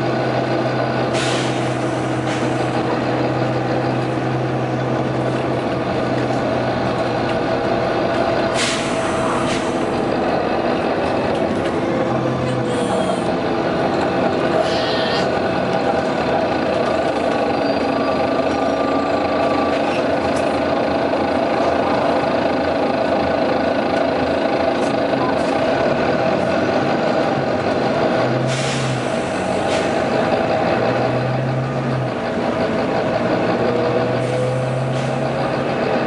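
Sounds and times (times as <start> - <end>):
diesel bus engine idling: 0.0 - 36.0
air brake hiss: 1.1 - 2.6, 8.6 - 9.8, 28.5 - 30.0.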